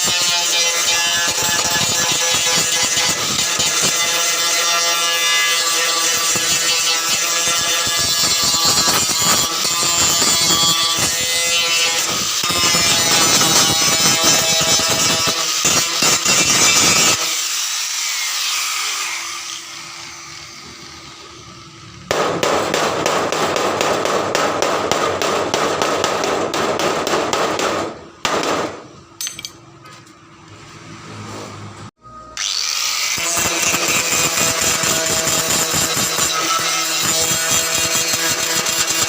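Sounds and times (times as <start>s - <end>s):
welding arc crackling: 0.0s - 17.8s, 33.0s - 39.0s.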